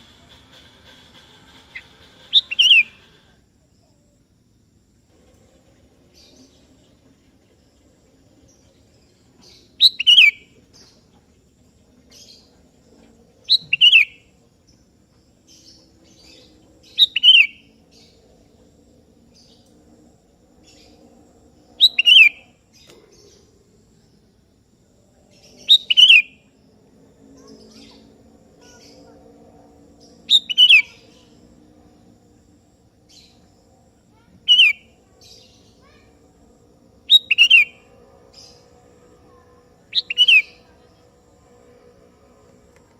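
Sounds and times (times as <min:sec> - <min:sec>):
faint bird chirps: 0:00.0 - 0:04.1, 0:05.3 - 0:14.8, 0:15.4 - 0:18.4, 0:20.6 - 0:24.2, 0:25.3 - 0:26.5, 0:27.3 - 0:29.4, 0:30.0 - 0:31.4, 0:34.1 - 0:36.4, 0:37.1 - 0:41.2.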